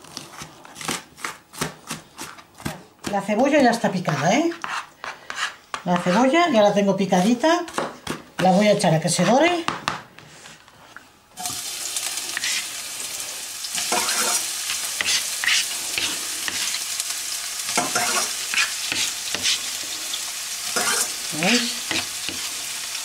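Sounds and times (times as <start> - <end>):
onion sizzling in hot oil: 11.4 - 23.0.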